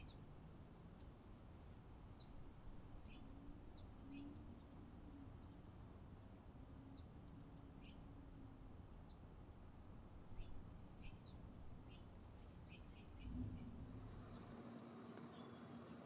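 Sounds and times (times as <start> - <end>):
songbird chirps: 0.0 - 0.3, 2.0 - 5.7, 6.8 - 8.1, 10.3 - 16.0.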